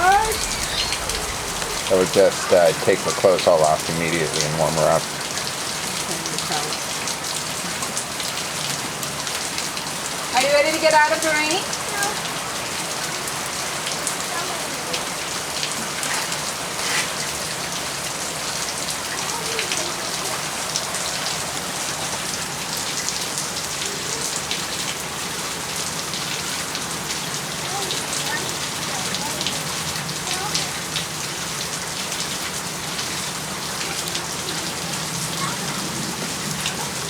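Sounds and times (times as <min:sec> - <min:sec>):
close raindrop hits: 0:00.0 - 0:07.0
heavy rain: 0:00.0 - 0:37.0.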